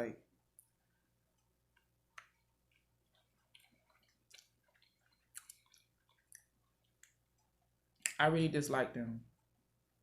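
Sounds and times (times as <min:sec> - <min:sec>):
person chewing: 0:00.5 - 0:08.0
mouth smacking and clicking: 0:01.4 - 0:08.2.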